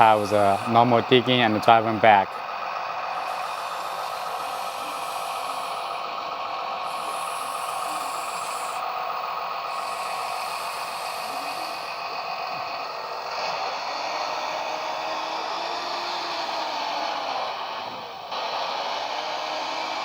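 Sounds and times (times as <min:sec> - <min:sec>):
engine sound through small speakers: 0:00.0 - 0:20.0
hydraulic pump whine: 0:00.0 - 0:20.0.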